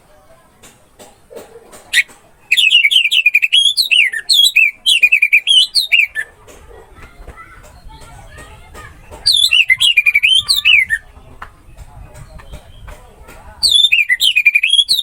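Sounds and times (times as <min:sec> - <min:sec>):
thrush singing whistled notes: 0:02.0 - 0:06.3, 0:09.2 - 0:11.1, 0:13.6 - 0:15.0.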